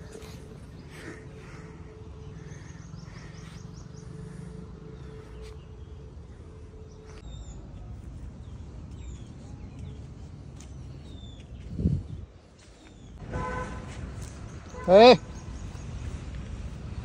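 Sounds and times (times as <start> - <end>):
birds chirping: 0.0 - 16.8.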